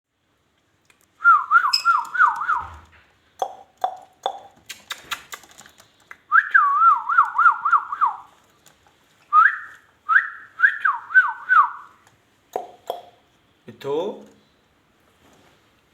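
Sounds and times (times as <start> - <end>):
warbling whistle: 1.3 - 2.7
short clicks and chirps: 1.6 - 2.6.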